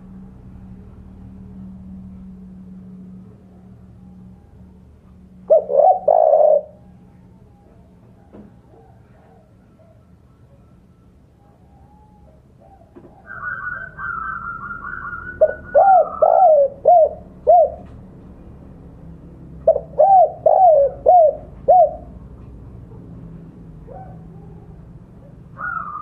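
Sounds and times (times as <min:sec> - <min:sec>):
dove cooing: 0:04.2 - 0:10.7, 0:11.4 - 0:18.0, 0:19.6 - 0:22.3, 0:23.8 - 0:26.0.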